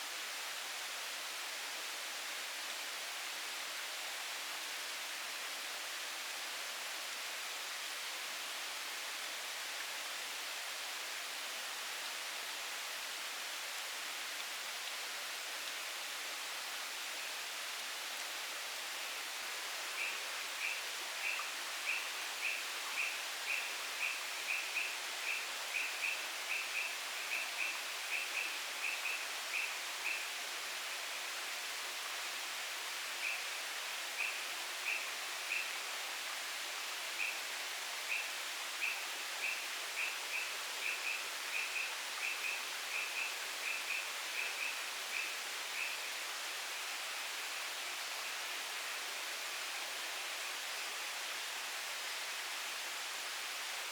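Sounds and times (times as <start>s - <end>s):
steady hiss: 0.0s - 53.9s.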